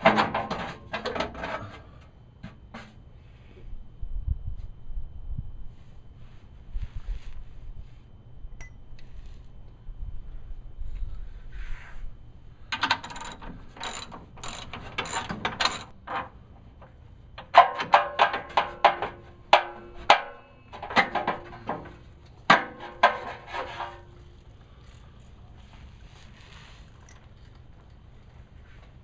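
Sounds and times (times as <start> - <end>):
hand ratchet wrench clicking: 12.8 - 15.9.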